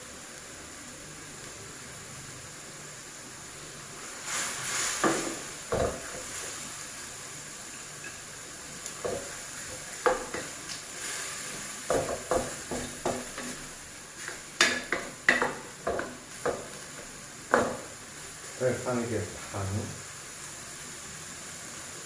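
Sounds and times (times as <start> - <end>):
food sizzling in a pan: 0.0 - 22.0
spatula scraping and knocking on pan: 5.0 - 6.4, 9.0 - 10.6, 11.5 - 18.0.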